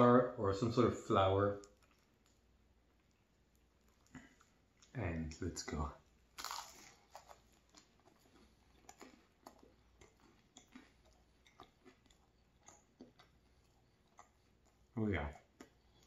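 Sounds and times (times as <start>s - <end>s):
quiet chewing: 1.5s - 16.0s
crisp pastry crackle: 1.6s - 11.0s.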